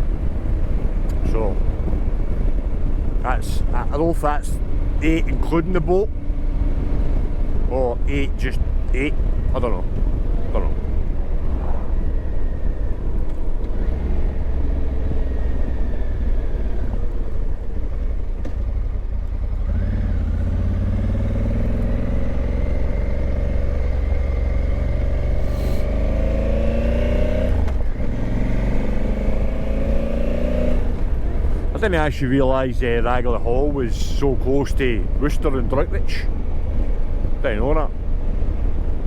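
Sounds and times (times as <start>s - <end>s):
motorcycle engine accelerating: 9.9s - 31.7s.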